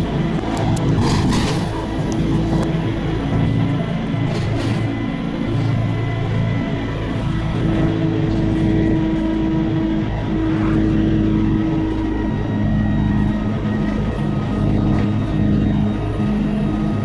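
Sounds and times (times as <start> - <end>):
humming tones: 0.0 - 17.0
vehicle engine rumble: 0.0 - 17.0.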